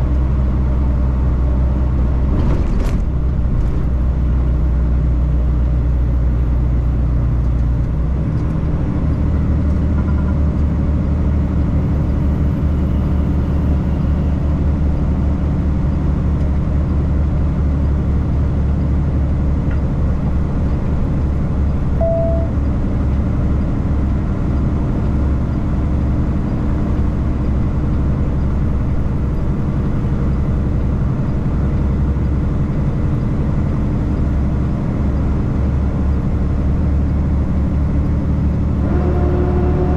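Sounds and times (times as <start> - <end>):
truck diesel engine drone: 0.0 - 39.9
short beep: 22.0 - 22.7.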